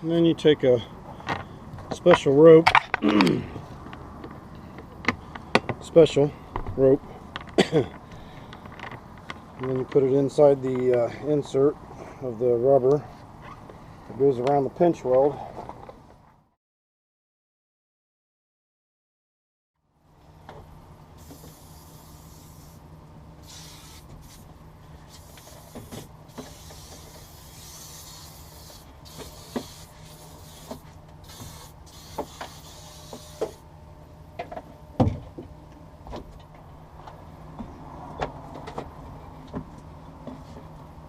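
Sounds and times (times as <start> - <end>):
steady low hum: 0.0 - 16.5, 19.8 - 41.0
hiss: 21.2 - 22.8, 23.4 - 24.5, 25.1 - 33.6.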